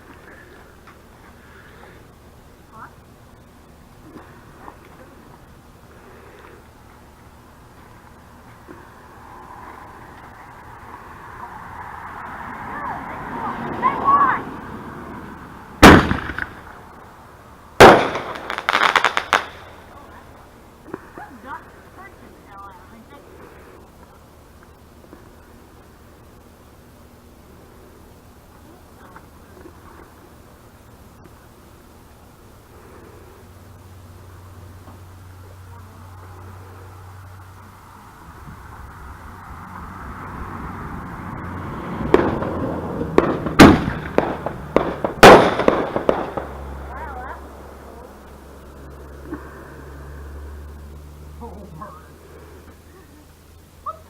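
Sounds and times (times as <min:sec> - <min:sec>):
firework hiss: 0:00.0 - 0:53.9
loud firework bangs: 0:15.7 - 0:17.0, 0:17.8 - 0:20.0, 0:41.7 - 0:47.3
crackling firework pops: 0:15.8 - 0:17.0, 0:17.8 - 0:20.1, 0:42.0 - 0:47.0.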